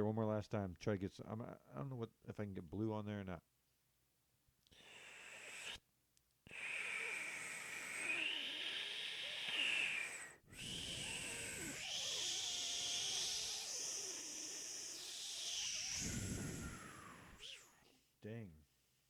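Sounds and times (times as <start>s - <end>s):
man breathing hard: 4.7s - 5.8s, 6.5s - 12.2s.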